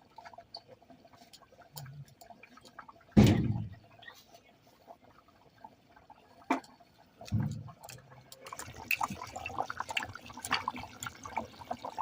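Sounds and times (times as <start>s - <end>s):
curry bubbling in a pot: 0.0s - 12.0s
low thud: 3.2s - 3.8s.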